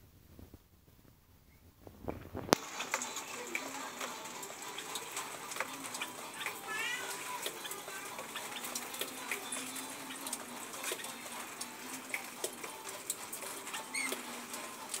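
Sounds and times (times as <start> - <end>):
parrot squeaky calls: 13.7 - 14.3.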